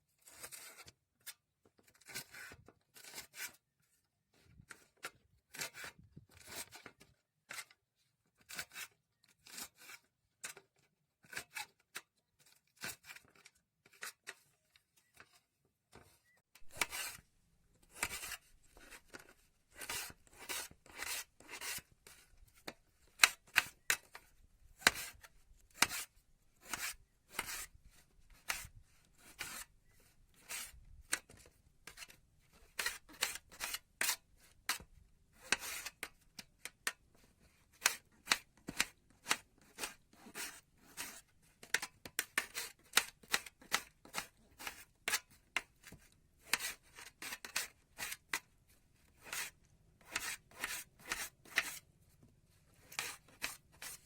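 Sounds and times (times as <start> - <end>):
knife cutting food: 16.6 - 17.2.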